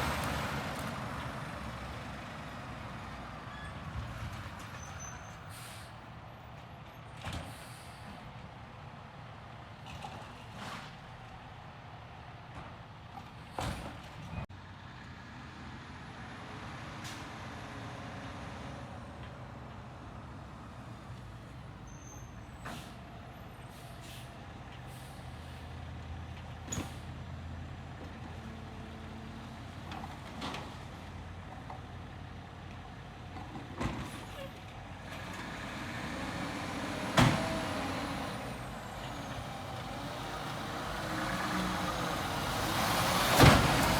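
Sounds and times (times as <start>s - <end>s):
garbage truck running: 22.4s - 43.9s.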